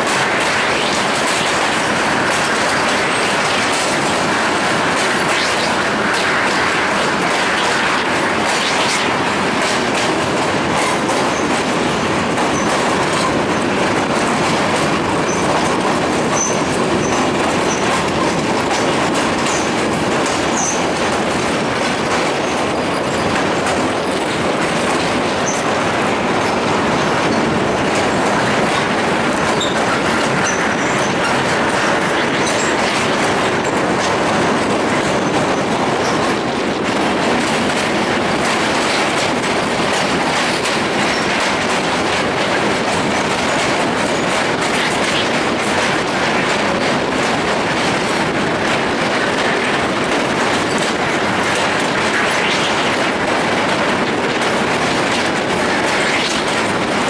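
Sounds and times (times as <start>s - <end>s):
clickety-clack of rail joints: 0.0s - 57.0s
train wheels rumbling on track: 0.0s - 57.0s
high wheel squeaks: 16.3s - 17.9s, 20.5s - 20.8s, 29.5s - 31.4s.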